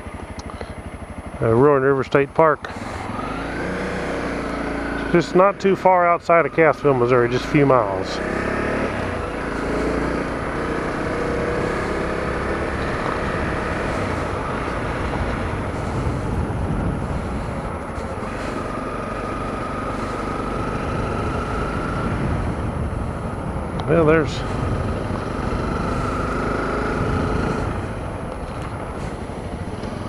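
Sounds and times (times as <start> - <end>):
motorcycle engine running: 0.0 - 30.0
road and wind noise: 0.0 - 30.0.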